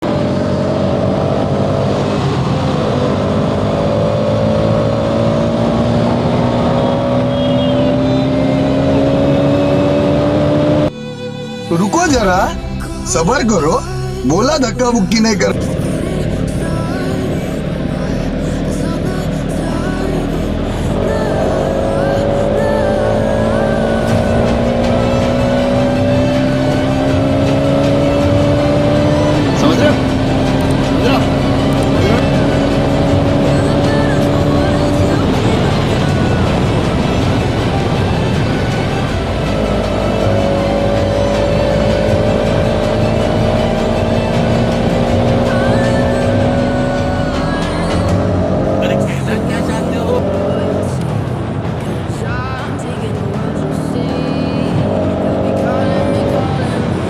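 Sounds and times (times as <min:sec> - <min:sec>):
motorcycle engine running: 0:12.0 - 0:57.0
wind rumble: 0:12.1 - 0:53.7.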